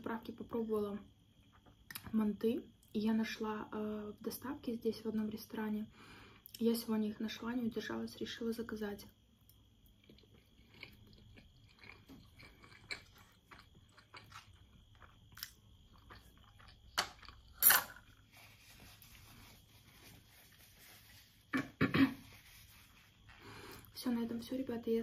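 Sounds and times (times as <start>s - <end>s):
chewing dumplings: 9.4s - 18.3s.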